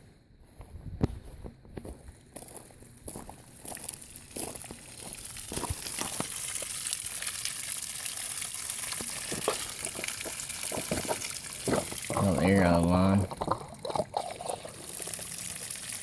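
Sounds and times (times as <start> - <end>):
garden hose water spraying: 3.7 - 16.0.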